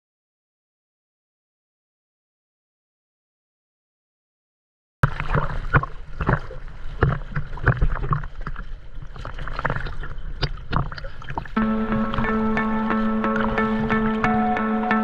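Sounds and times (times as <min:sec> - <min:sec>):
water slapping against hull: 0:05.0 - 0:14.2
low hum: 0:11.6 - 0:15.0
music: 0:11.6 - 0:15.0.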